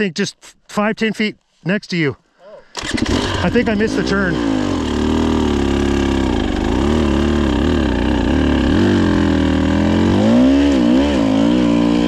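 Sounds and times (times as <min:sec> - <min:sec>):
dirt bike engine revving: 0:02.8 - 0:12.0.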